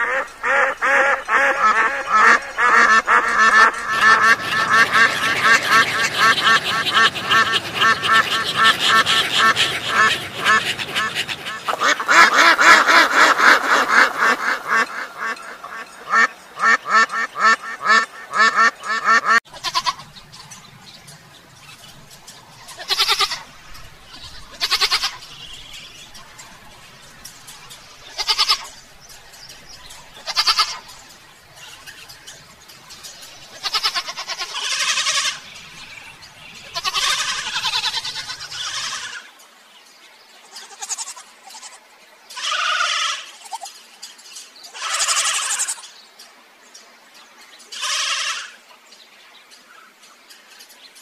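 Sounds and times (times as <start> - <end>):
ducks quacking: 0.0 - 20.9, 21.6 - 39.3
goat kid bleating: 19.5 - 20.1, 22.8 - 23.5, 24.5 - 25.2, 28.1 - 28.7, 30.2 - 30.8, 33.5 - 35.4, 36.7 - 39.2, 40.5 - 41.8, 42.4 - 43.7, 44.7 - 45.8, 47.8 - 48.6.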